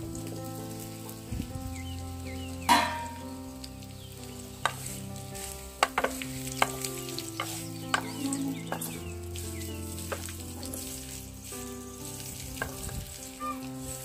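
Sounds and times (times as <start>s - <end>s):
food sizzling in hot oil: 0.0s - 14.0s
wooden spatula knocking on pan: 5.8s - 6.8s, 7.4s - 8.9s.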